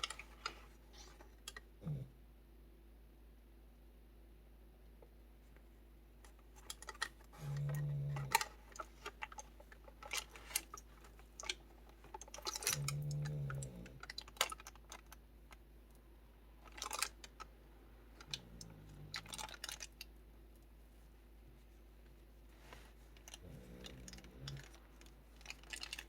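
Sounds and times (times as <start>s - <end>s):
dog snoring: 7.4s - 8.4s, 23.4s - 24.7s.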